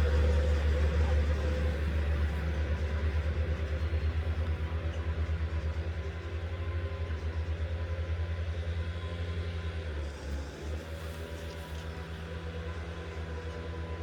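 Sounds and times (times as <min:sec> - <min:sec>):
large engine throbbing: 0:00.0 - 0:07.9.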